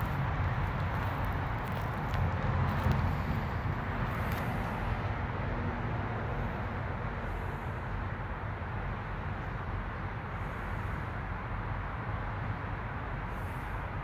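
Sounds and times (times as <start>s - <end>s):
truck engines idling: 0.0s - 4.9s.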